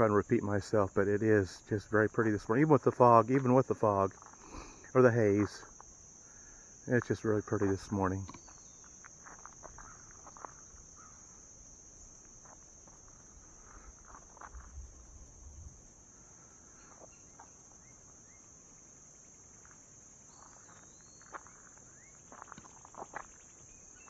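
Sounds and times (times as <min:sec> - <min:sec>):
footsteps: 0:00.0 - 0:05.8
crickets chirping: 0:00.0 - 0:24.0.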